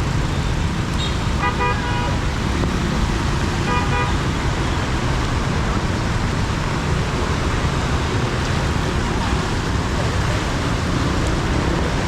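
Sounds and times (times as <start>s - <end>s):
heavy rain: 0.0s - 12.0s
road traffic: 0.0s - 12.0s
car horn toot: 1.0s - 2.2s, 3.7s - 4.1s.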